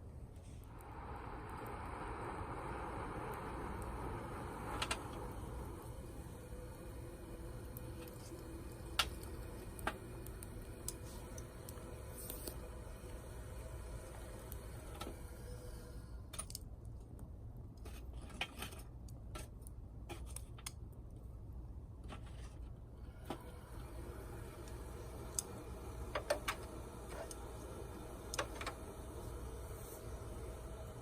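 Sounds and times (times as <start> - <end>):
steady low hum: 0.0 - 18.3, 19.1 - 31.0
twig fire crackling: 0.4 - 16.7, 23.7 - 31.0.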